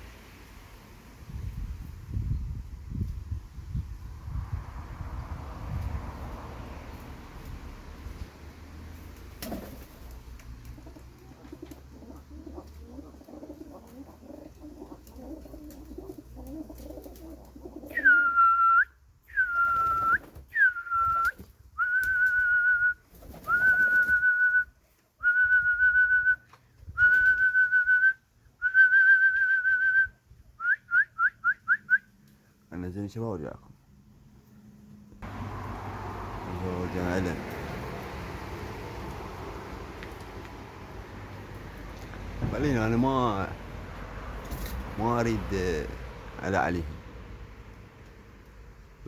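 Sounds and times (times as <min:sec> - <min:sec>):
pigeons cooing: 0:10.7 - 0:18.2
person whistling loudly: 0:17.9 - 0:26.4, 0:27.0 - 0:32.0.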